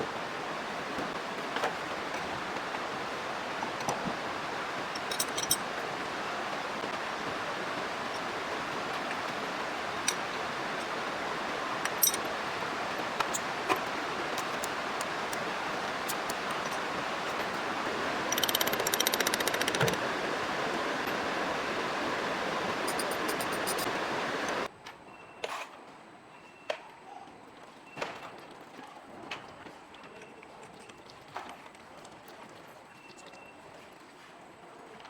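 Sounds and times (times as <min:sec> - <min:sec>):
steady hiss: 0:05.7 - 0:24.7
rapid ticking rattle: 0:18.3 - 0:20.0
sharp metallic clicks: 0:18.3 - 0:20.0.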